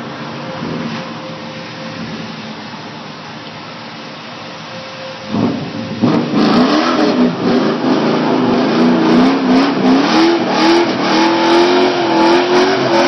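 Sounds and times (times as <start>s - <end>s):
car engine revving: 5.3s - 13.0s.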